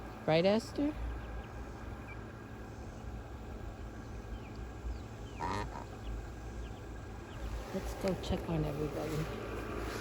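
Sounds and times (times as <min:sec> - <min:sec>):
low steady rumble: 0:00.0 - 0:10.0
chicken calling: 0:05.2 - 0:06.1.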